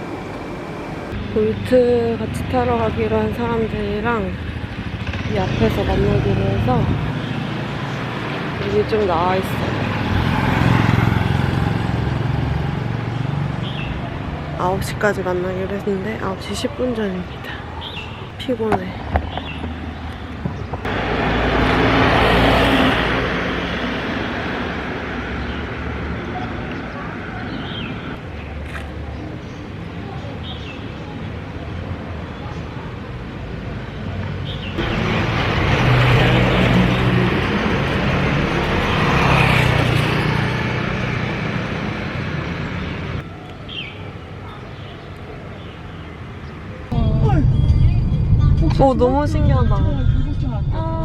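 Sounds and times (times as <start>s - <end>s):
road noise: 0.0s - 51.0s
motor vehicle passing: 4.1s - 14.6s, 19.2s - 28.2s, 34.7s - 43.2s.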